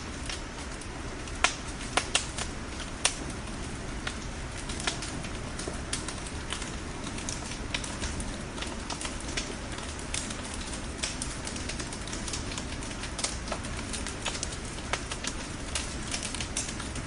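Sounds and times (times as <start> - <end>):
bonfire crackling and popping: 0.0 - 17.0.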